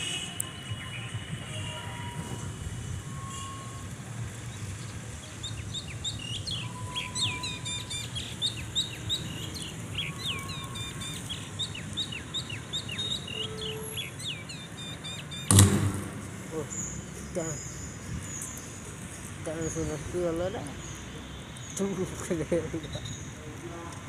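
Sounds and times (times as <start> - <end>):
birds chirping: 3.1 - 24.0
loud thump: 15.5 - 16.6.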